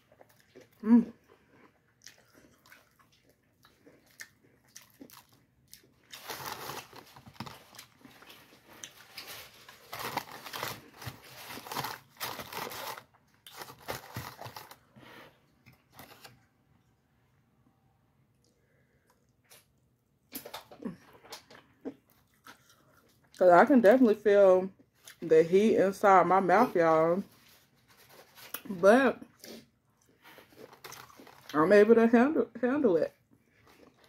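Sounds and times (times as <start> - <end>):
crunching and chewing fried chicken: 0.0 - 16.4, 18.4 - 23.4, 27.9 - 31.6, 33.2 - 34.0.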